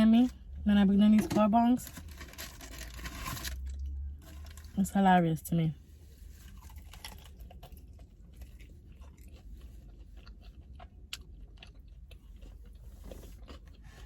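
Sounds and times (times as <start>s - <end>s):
person chewing food: 6.2s - 14.0s.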